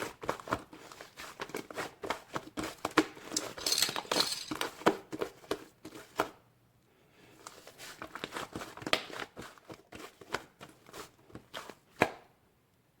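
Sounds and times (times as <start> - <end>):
crinkling: 3.3 - 4.7
small objects clicking and tapping: 3.3 - 4.8.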